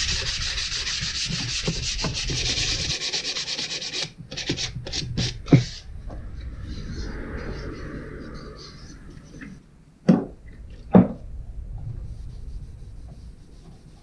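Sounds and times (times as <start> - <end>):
sandpaper sanding wood: 0.0 - 5.8.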